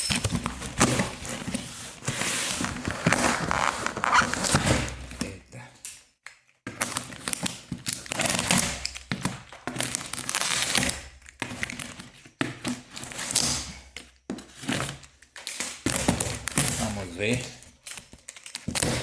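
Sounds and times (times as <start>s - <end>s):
packing crumpling and rustling: 0.0s - 5.4s, 6.7s - 19.0s
cardboard tearing: 0.8s - 5.1s, 6.8s - 11.9s, 18.5s - 19.0s.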